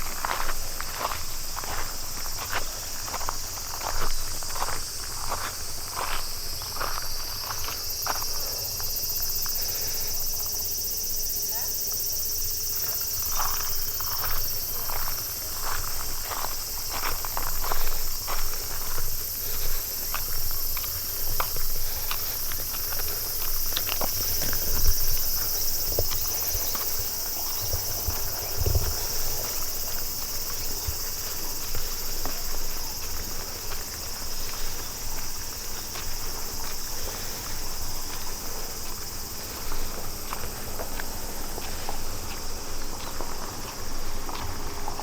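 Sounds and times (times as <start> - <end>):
footsteps on a path: 0.0 - 45.0
insects chirring: 0.0 - 45.0.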